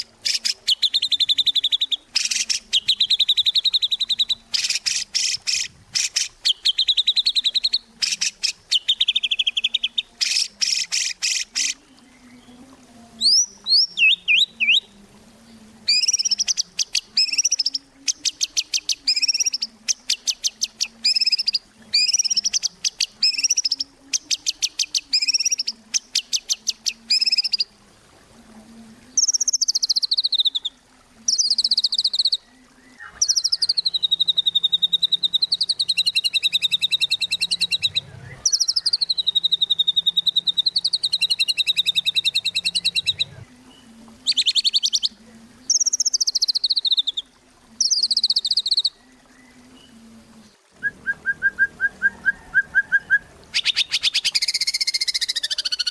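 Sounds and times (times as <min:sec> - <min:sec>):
bird singing with rattling trills: 0:00.0 - 0:12.5, 0:13.2 - 0:14.9, 0:15.9 - 0:27.6, 0:33.0 - 0:43.3, 0:45.7 - 0:49.0, 0:51.2 - 0:55.9.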